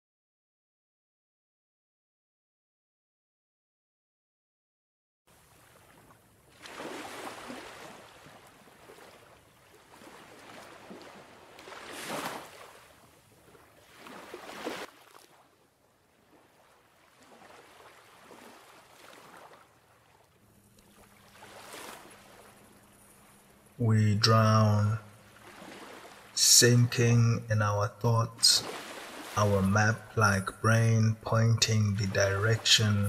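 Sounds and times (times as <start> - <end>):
water surging in swells: 5.3 - 31.0.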